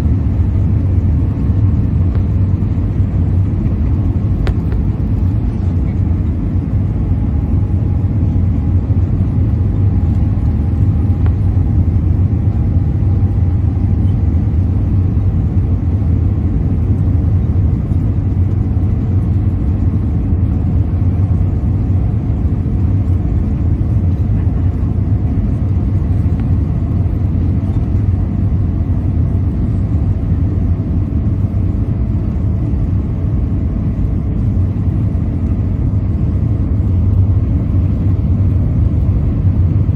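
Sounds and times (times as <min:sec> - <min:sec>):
faint whine: 0:00.0 - 0:39.9
low rumble of jet engines: 0:00.0 - 0:39.9.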